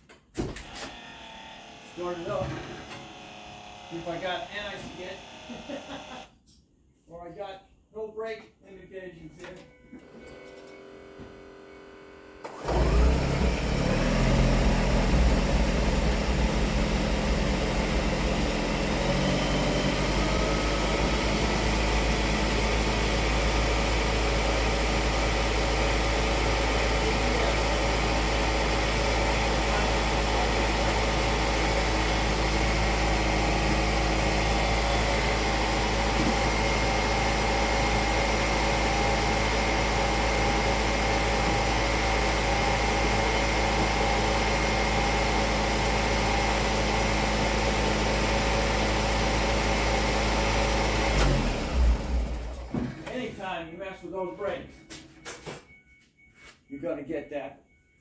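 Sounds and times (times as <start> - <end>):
car engine starting and idling: 10.4 - 53.4.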